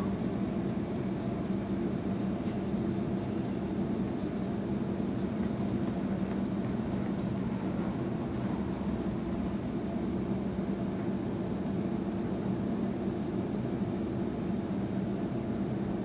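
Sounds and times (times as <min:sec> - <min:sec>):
electric train rumbling: 0:00.0 - 0:11.4.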